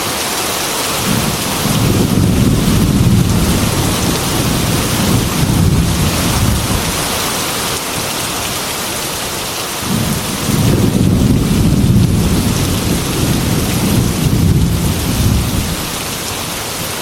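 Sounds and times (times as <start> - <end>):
heavy rain on a glass window: 0.0 - 17.0
rolling thunder rumble: 1.0 - 7.3, 9.8 - 16.5.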